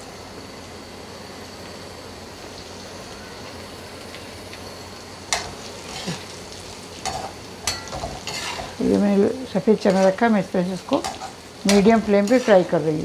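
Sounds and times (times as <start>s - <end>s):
food frying in hot oil: 0.0s - 13.0s
metal spatula knocking and scraping pan: 7.1s - 8.8s.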